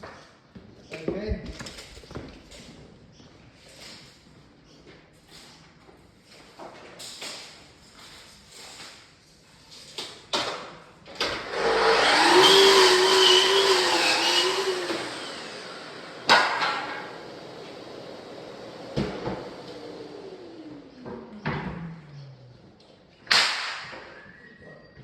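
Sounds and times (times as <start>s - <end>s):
power tool motor running: 11.3s - 20.8s.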